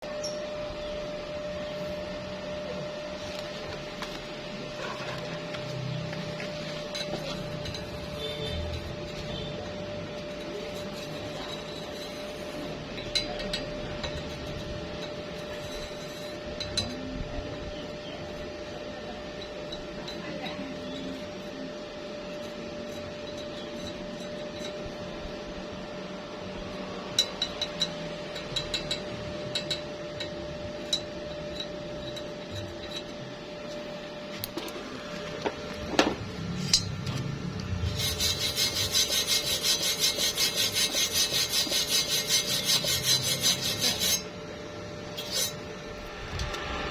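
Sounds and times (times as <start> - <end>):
steady tool hum: 0.0 - 46.9
rhythmic rasping on metal: 4.9 - 25.7, 26.6 - 34.2, 37.7 - 45.7.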